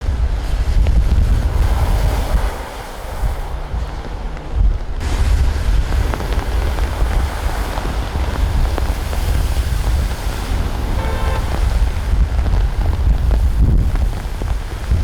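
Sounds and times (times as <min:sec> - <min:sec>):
wind buffeting microphone: 0:00.0 - 0:15.0
short pitched tone: 0:11.0 - 0:11.5.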